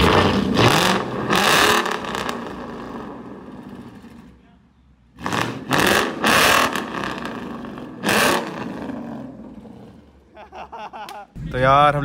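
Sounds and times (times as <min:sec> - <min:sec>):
car engine revving: 0:00.0 - 0:04.4, 0:05.1 - 0:10.3.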